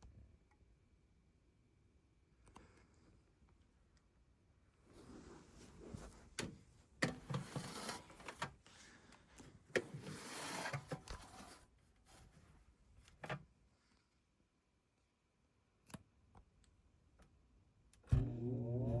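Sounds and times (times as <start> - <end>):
rubbing or scraping: 7.2 - 8.4, 9.8 - 12.4.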